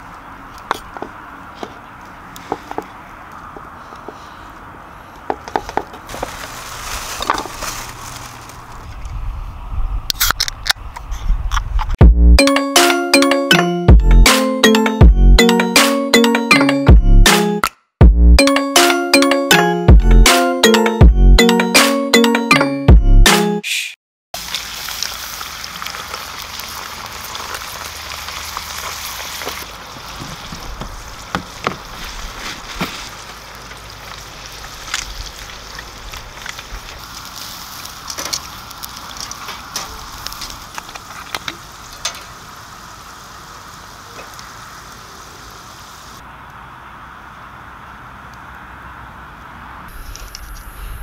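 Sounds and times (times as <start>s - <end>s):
campfire crackling and popping: 24.4s - 45.1s
steady fire hiss: 24.4s - 46.6s.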